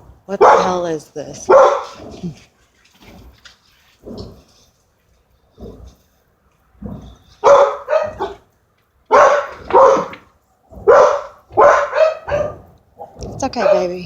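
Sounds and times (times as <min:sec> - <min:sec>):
rumbling noise overhead: 0:00.0 - 0:14.0
dog barking: 0:00.4 - 0:00.8, 0:01.5 - 0:02.0, 0:07.4 - 0:08.5, 0:09.1 - 0:14.0.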